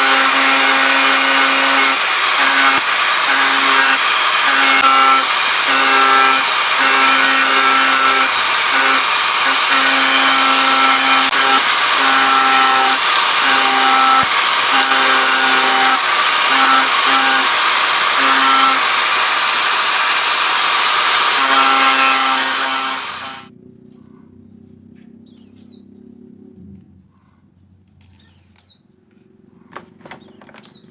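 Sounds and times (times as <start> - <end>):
small power tool running: 0.0 - 23.5.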